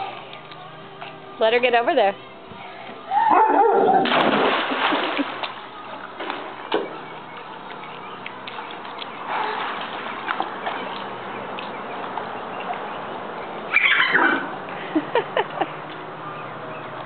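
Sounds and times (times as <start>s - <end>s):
dog yipping: 3.2s - 4.0s, 13.7s - 14.5s.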